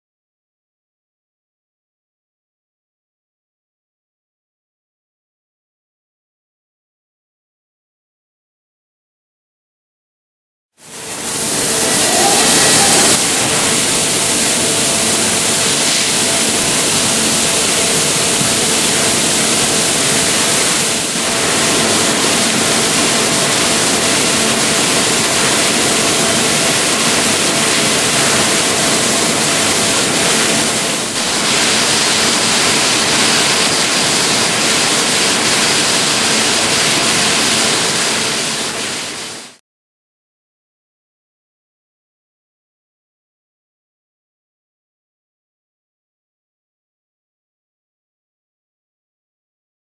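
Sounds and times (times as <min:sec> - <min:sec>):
machine cutting metal: 0:10.8 - 0:39.6.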